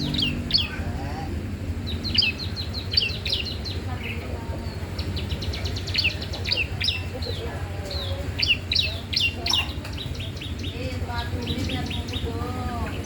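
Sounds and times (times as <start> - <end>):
songbird singing high chirps: 0.0 - 13.0
steady low hum: 0.0 - 13.0.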